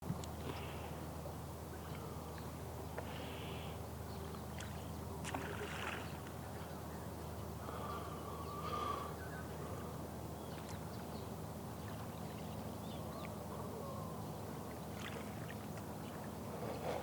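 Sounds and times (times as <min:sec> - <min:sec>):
steady low hum: 0:00.0 - 0:17.0
faint bird chirps: 0:07.8 - 0:14.4.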